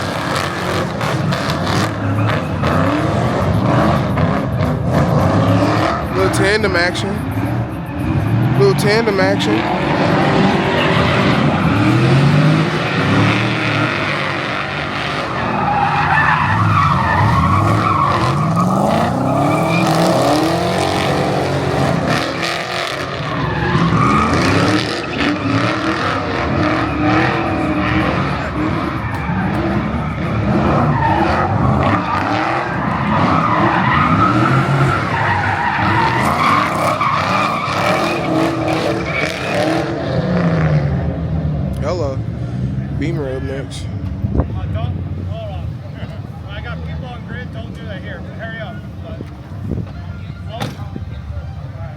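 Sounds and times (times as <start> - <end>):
car engines revving: 0.0 - 51.9
tyres skidding: 0.0 - 51.9.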